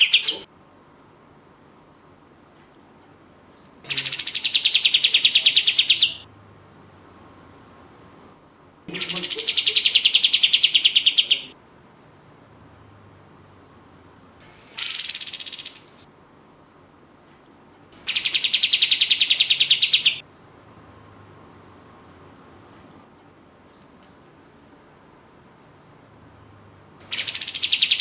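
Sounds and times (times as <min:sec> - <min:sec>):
bird giving rattling trills: 0:14.6 - 0:16.0, 0:18.0 - 0:20.2, 0:27.1 - 0:28.0.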